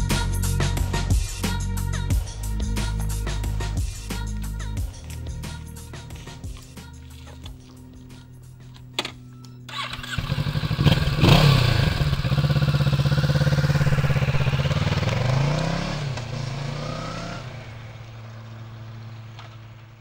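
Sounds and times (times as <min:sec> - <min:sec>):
motorcycle engine accelerating: 0:08.7 - 0:20.0.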